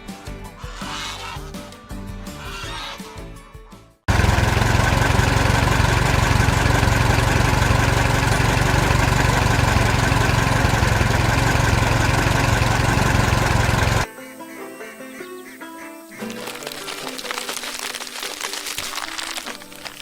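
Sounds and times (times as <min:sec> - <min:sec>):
engine idling: 0:04.1 - 0:14.1.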